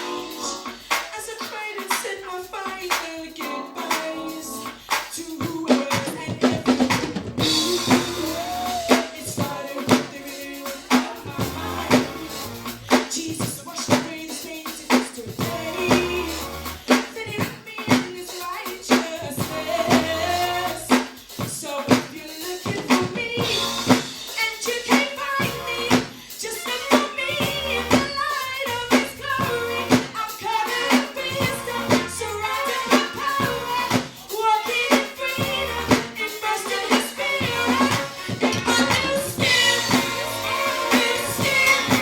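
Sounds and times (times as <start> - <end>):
drum kit beat: 0.0 - 42.0
upbeat gospel music: 0.0 - 42.0
bass line: 7.2 - 9.0, 11.3 - 13.0, 15.4 - 16.9, 19.2 - 20.9, 23.4 - 24.0, 25.4 - 26.0, 27.3 - 30.0, 31.3 - 34.0, 35.4 - 36.0, 37.2 - 42.0.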